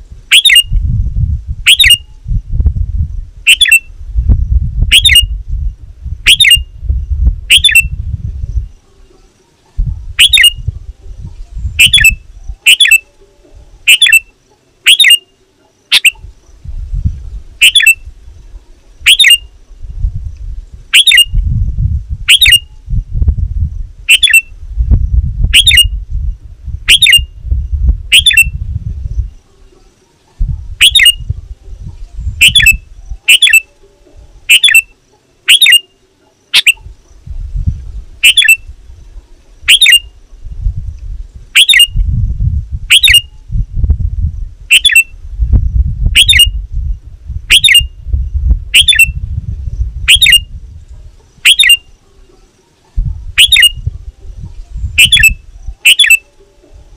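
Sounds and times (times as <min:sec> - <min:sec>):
bulbul sharp calls: 0:00.3 - 0:00.8, 0:01.6 - 0:02.2, 0:03.5 - 0:03.9, 0:04.9 - 0:05.4, 0:06.2 - 0:06.8, 0:07.5 - 0:07.9, 0:08.6 - 0:16.6, 0:17.6 - 0:18.1, 0:19.0 - 0:19.6, 0:20.9 - 0:21.4, 0:22.3 - 0:22.8, 0:24.0 - 0:24.6, 0:25.5 - 0:26.0, 0:26.8 - 0:27.4, 0:28.1 - 0:28.6, 0:29.2 - 0:37.2, 0:38.2 - 0:38.7, 0:39.6 - 0:40.2, 0:41.5 - 0:42.0, 0:42.9 - 0:43.4, 0:44.7 - 0:45.2, 0:46.1 - 0:46.6, 0:47.5 - 0:48.0, 0:48.7 - 0:49.2, 0:50.0 - 0:50.6, 0:51.2 - 0:56.9.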